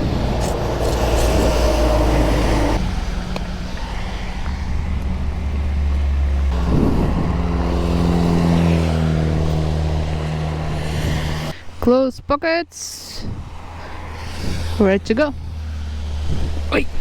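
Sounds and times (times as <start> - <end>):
vehicle engine running: 0.0 - 11.5.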